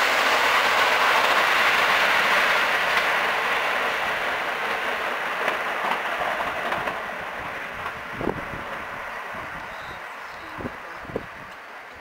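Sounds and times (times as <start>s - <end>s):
electric train running noise: 0.0s - 12.0s.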